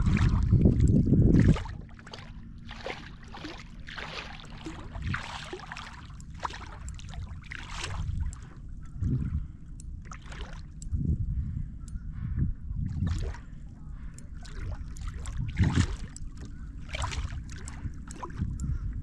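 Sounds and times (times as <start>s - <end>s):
water splashing against kayak hull: 0.0s - 9.4s, 10.0s - 10.8s, 12.9s - 18.6s
light ticks: 4.3s - 11.2s, 13.0s - 19.0s.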